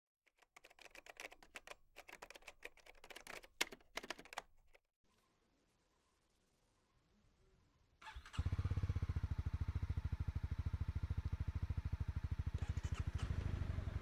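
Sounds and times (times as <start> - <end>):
rapid clicking: 0.3 - 4.8.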